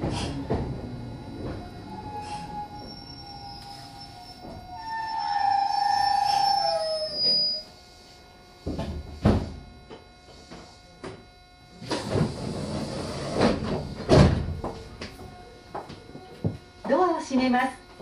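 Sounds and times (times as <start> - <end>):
train whine: 0.0 - 15.6
sliding doors knocking and clattering: 12.0 - 14.8.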